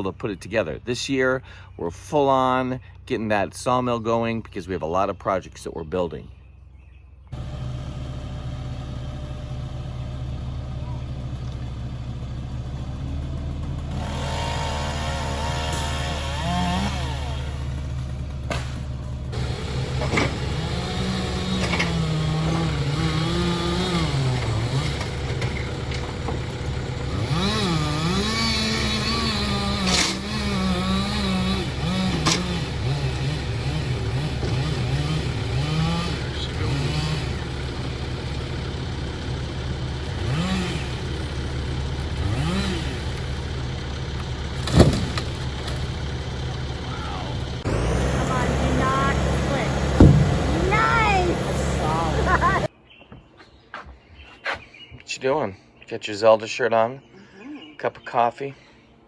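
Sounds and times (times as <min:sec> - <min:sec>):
chainsaw cutting wood: 0:13.6 - 0:52.7.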